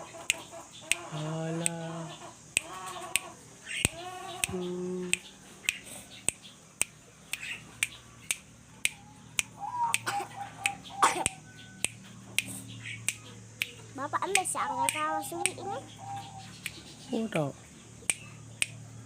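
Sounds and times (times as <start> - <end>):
sharp clicks: 2.5 - 15.8.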